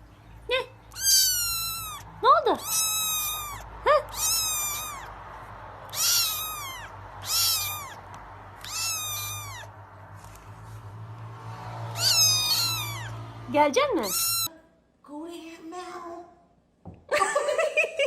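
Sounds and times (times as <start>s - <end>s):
cat meowing: 0.8s - 5.2s, 5.8s - 9.8s, 11.8s - 13.3s, 13.9s - 14.5s.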